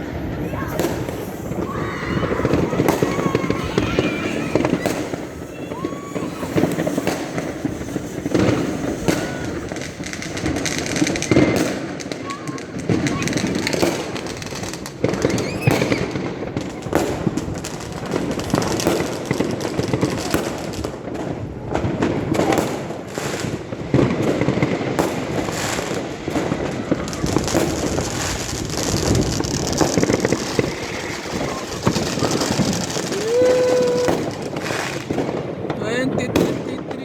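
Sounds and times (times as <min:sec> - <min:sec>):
fireworks bangs and crackling: 0:00.0 - 0:37.0.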